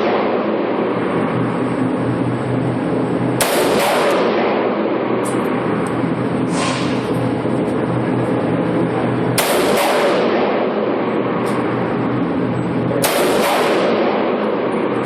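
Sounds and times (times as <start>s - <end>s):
gunshots: 0.0s - 1.0s, 3.4s - 5.4s, 6.5s - 7.3s, 9.3s - 11.9s, 12.9s - 15.0s
sharp report: 6.3s - 7.4s.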